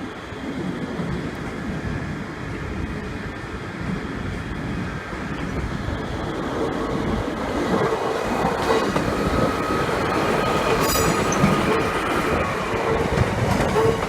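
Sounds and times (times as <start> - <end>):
train running with hum: 0.0 - 14.0
high-pitched squeal: 9.3 - 12.6.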